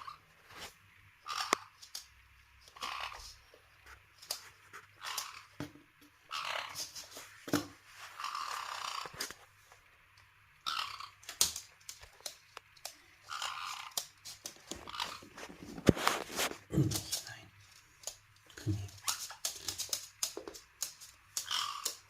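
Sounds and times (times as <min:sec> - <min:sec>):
parrots making raspy noises: 0:00.0 - 0:00.2, 0:01.2 - 0:01.9, 0:02.7 - 0:05.6, 0:06.3 - 0:07.2, 0:08.0 - 0:09.4, 0:10.6 - 0:11.6, 0:13.0 - 0:17.4, 0:21.3 - 0:22.0.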